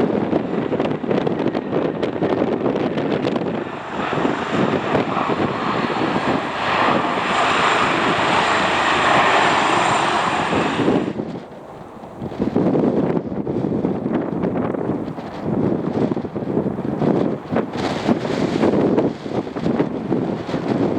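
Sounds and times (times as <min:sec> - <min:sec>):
high engine whine: 0:00.0 - 0:12.4
airliner engines running: 0:00.0 - 0:20.9
wind buffeting microphone: 0:00.0 - 0:20.9.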